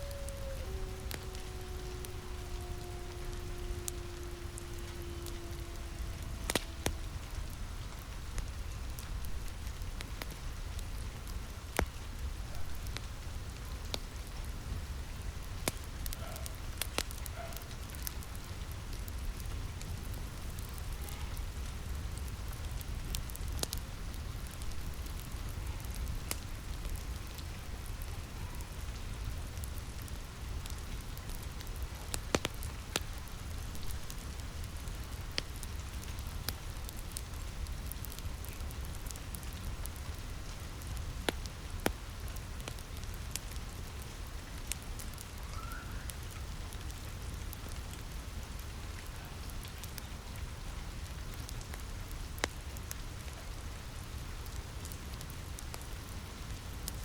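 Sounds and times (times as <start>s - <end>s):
low rumble: 0.0s - 9.6s
steady rainfall: 0.0s - 57.0s
wood fire crackling: 0.0s - 57.0s.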